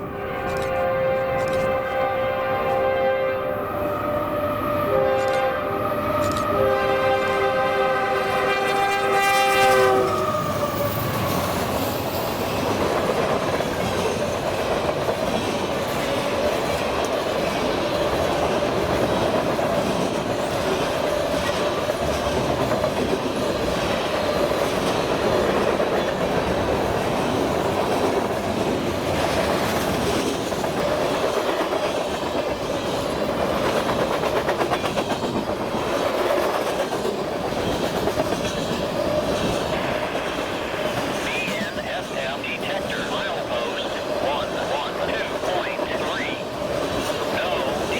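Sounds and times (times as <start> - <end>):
locomotive horn: 0.0 - 10.6
freight cars rumbling on rails: 3.8 - 47.9.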